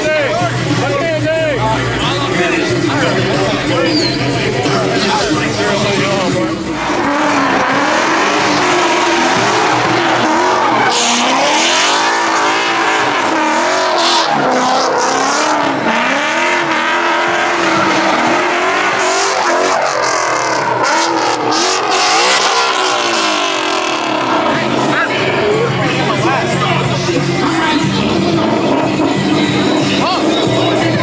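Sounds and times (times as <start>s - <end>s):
car engine revving: 0.0s - 31.0s
tires squealing: 0.0s - 31.0s.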